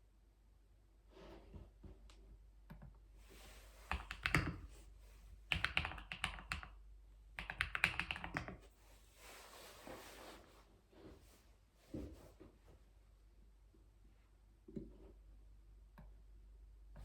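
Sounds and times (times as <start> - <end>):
keyboard typing: 3.9 - 4.6, 5.5 - 6.8, 7.4 - 8.6.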